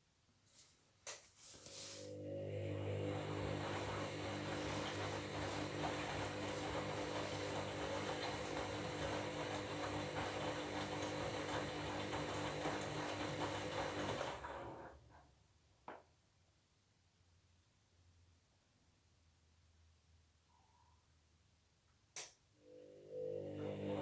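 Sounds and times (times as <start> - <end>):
water and wet laundry swishing: 1.4 - 14.8
washing machine motor hum: 1.7 - 15.3, 22.6 - 24.0.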